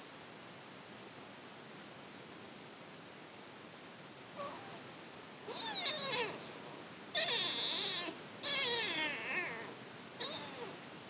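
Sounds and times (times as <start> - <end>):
kitten meowing: 5.5 - 6.4, 7.2 - 10.8.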